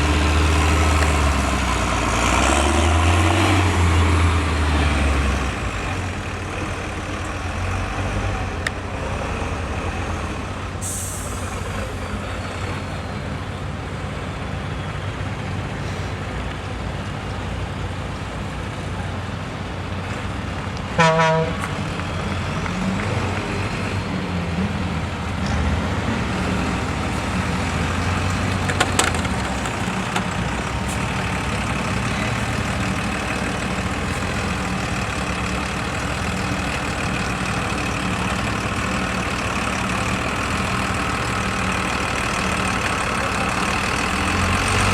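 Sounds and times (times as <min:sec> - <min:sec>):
heavy diesel truck engine: 0:00.0 - 0:44.9
short horn toot: 0:21.0 - 0:21.7.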